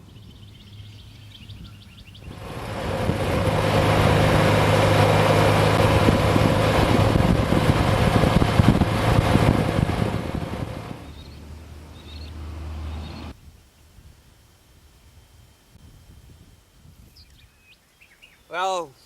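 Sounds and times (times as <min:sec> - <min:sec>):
vehicle engine and road noise: 0:02.2 - 0:13.4
faint bird chirps: 0:11.0 - 0:13.3, 0:17.1 - 0:19.0.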